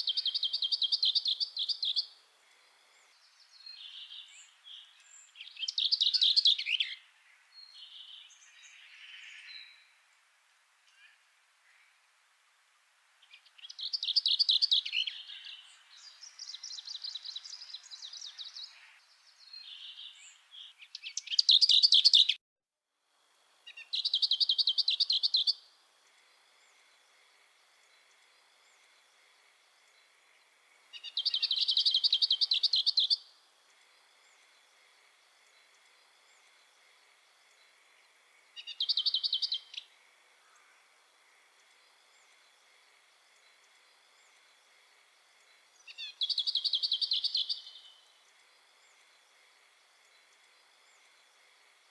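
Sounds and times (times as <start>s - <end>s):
songbird trilling: 0.0s - 2.1s, 3.7s - 7.0s, 19.6s - 22.4s, 23.7s - 25.6s, 30.9s - 33.2s, 38.6s - 39.9s, 45.8s - 47.9s.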